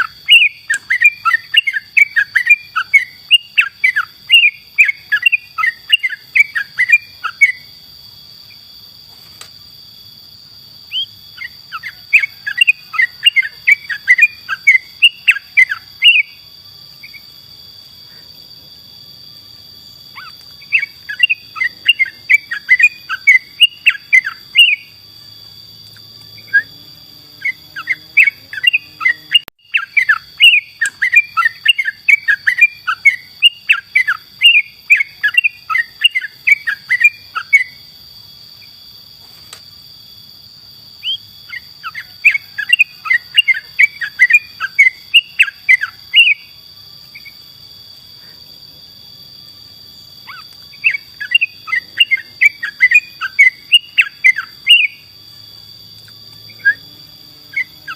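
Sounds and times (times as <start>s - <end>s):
bird singing rapid chirps: 0.0s - 7.8s, 10.8s - 17.6s, 20.1s - 37.9s, 41.0s - 47.4s, 50.2s - 55.3s.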